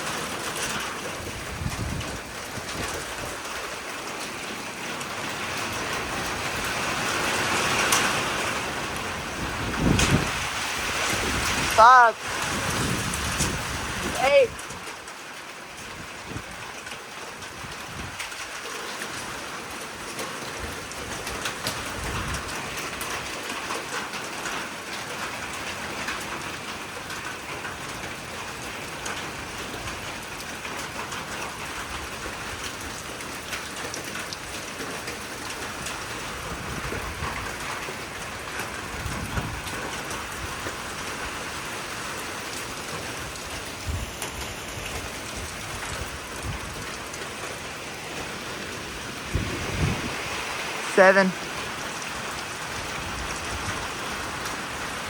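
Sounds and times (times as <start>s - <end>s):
steady rain: 0.0s - 55.0s
low thunder rumbles: 1.2s - 3.5s, 49.3s - 50.6s.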